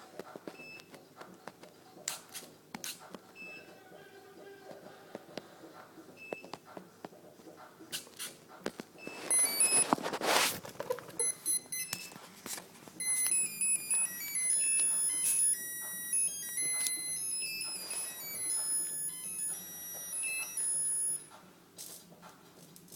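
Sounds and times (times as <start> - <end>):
high electronic beeps: 9.0 - 9.9, 11.2 - 12.1, 13.0 - 21.3.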